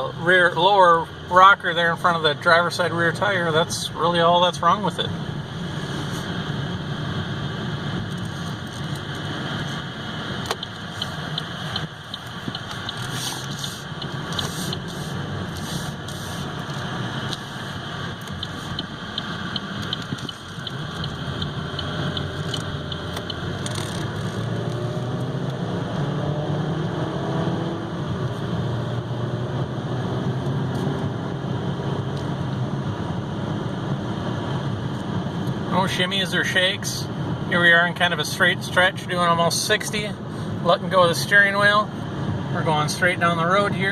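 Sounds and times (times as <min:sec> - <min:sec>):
car engine and road noise: 0:00.0 - 0:43.9
light rapid ticking: 0:10.4 - 0:14.9, 0:16.5 - 0:24.2.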